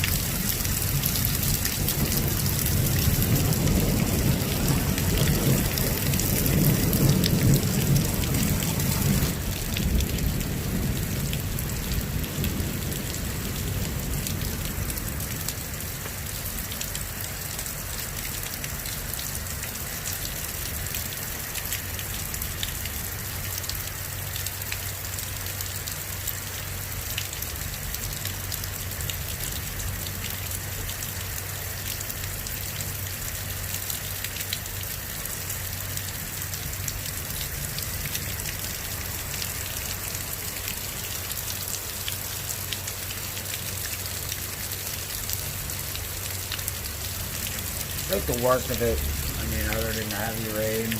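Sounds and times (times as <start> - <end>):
low rumble of thunder: 0.0 - 16.5, 47.0 - 50.9
heavy rain pouring: 0.0 - 50.9.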